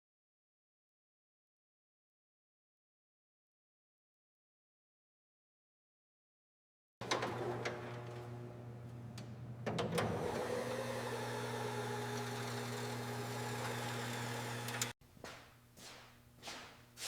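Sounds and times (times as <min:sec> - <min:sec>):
motor humming: 0:07.0 - 0:15.0.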